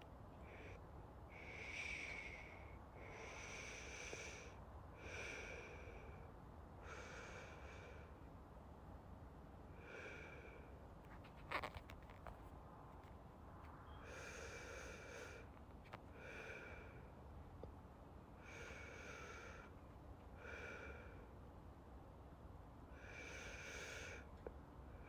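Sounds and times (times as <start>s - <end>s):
soft slow breathing: 0.3s - 8.5s, 9.6s - 13.1s, 13.7s - 21.5s, 22.8s - 25.0s.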